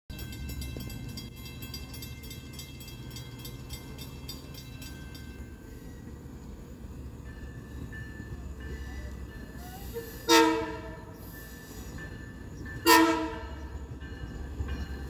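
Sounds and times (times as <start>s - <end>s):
level-crossing bell ringing: 0.1s - 10.2s
diesel train rumble: 0.1s - 15.0s
faint train horn: 8.7s - 12.0s, 12.8s - 13.9s.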